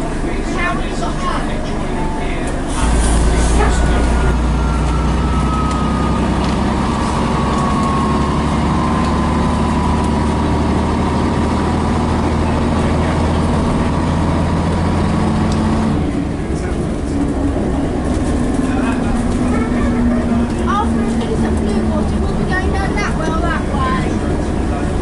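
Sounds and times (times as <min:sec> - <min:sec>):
bus diesel engine running: 0:00.0 - 0:25.0.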